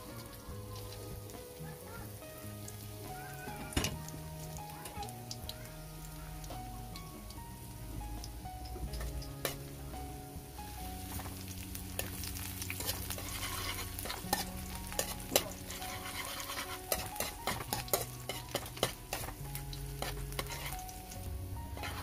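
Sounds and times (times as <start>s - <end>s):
garlic sizzling in hot oil: 0.0s - 22.0s
metal ladle scraping a wok: 11.0s - 22.0s.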